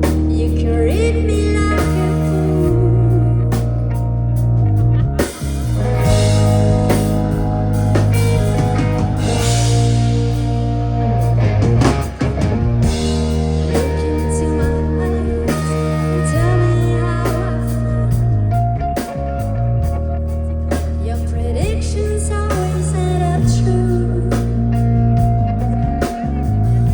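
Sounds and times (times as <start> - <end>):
rock band playing live: 0.0 - 26.9.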